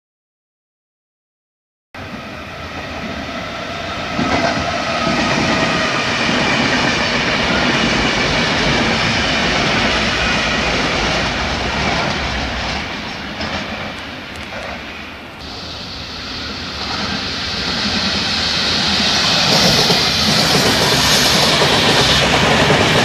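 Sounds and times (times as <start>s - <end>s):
train wheels rolling on rail: 2.0s - 23.0s
clickety-clack of wheels: 11.0s - 14.8s, 19.4s - 23.0s.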